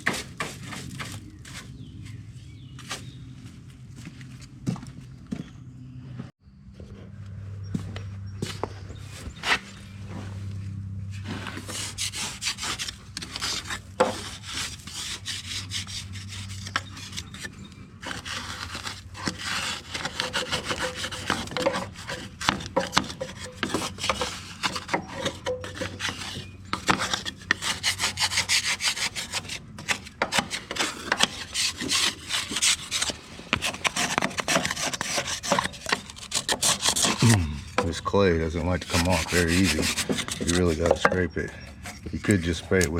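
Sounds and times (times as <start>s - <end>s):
hand scraping mud off metal: 0.0s - 2.1s, 11.2s - 42.9s.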